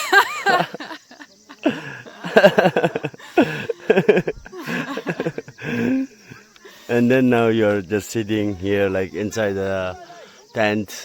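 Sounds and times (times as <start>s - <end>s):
people laughing: 0.0s - 7.2s.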